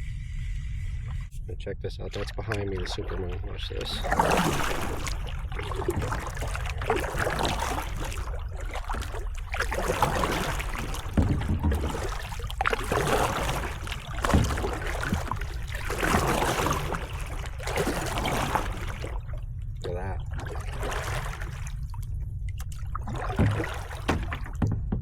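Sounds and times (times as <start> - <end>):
steady low rumble: 0.0 - 25.0
paddle strokes splashing water: 2.4 - 19.4, 20.2 - 24.8.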